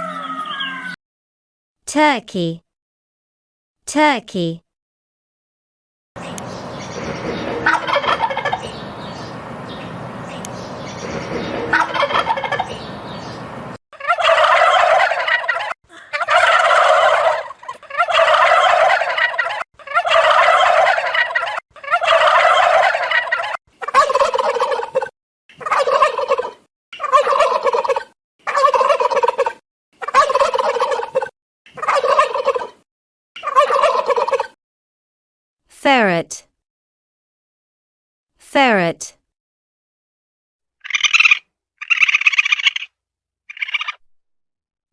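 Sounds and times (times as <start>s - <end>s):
noisy background: 6.2s - 13.8s
turkey gobbling: 6.2s - 32.8s, 33.4s - 34.6s, 40.9s - 42.9s, 43.5s - 44.0s.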